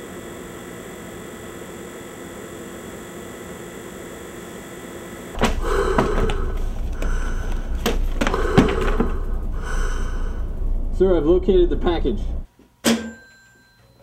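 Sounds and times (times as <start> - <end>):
electrical hum: 0.0 - 12.5
books knocking on wooden shelf: 5.4 - 9.2
low rumble: 5.4 - 12.5.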